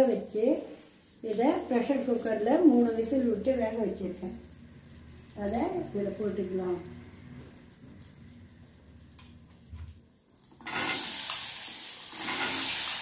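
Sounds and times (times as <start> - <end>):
loud sizzle in hot oil: 0.0 - 13.0.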